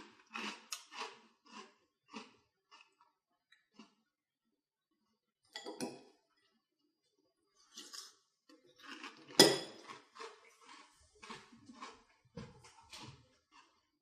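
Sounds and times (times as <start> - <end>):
chewing crunchy cereal: 0.0 - 4.2, 6.3 - 14.0.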